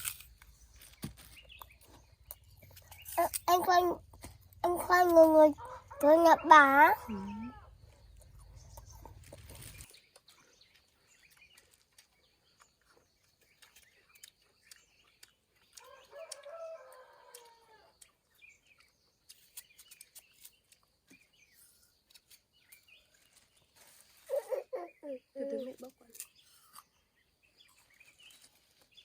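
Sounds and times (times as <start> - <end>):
small bird chirps: 0.0 - 29.0
rooster crowing: 5.6 - 7.7, 15.8 - 17.9.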